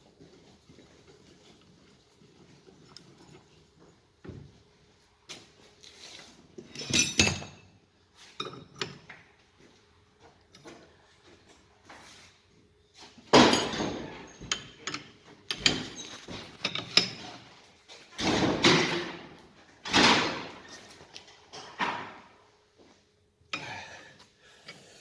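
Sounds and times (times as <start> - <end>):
metal clanks and knocks: 13.3 - 17.5.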